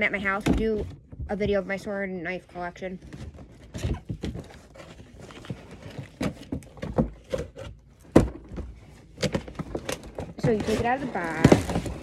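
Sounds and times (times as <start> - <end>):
cardboard box taps and rustles: 3.1 - 12.0.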